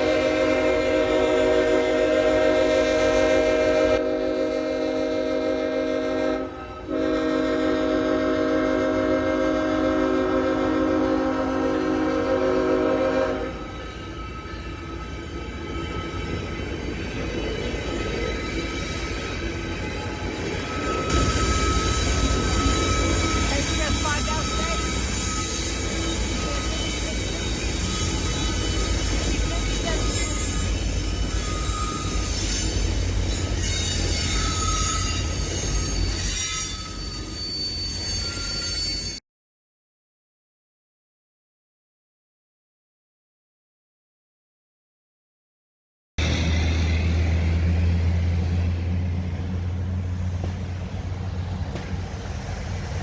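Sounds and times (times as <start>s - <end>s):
locomotive air horn: 0.0s - 15.2s, 19.0s - 37.3s
train rumbling past: 0.0s - 39.2s, 46.2s - 53.0s
wheels squealing on rails: 10.4s - 39.2s, 46.2s - 53.0s.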